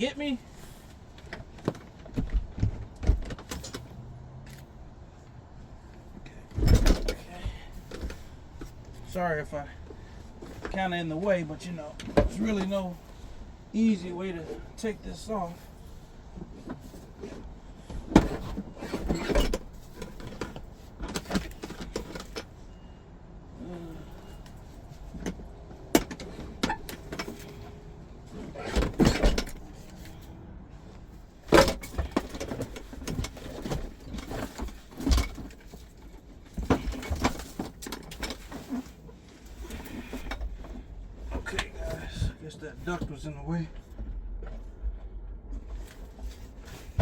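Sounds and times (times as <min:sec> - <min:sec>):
rattling and rustling: 0:00.5 - 0:22.9, 0:23.7 - 0:47.0
engine cover knocking and scraping: 0:15.2 - 0:22.8, 0:24.1 - 0:47.0.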